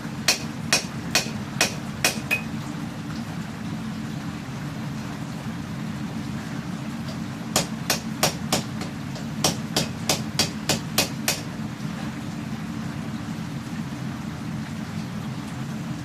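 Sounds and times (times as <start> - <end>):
hammer striking steel on anvil: 0.3 - 2.5, 7.6 - 11.5.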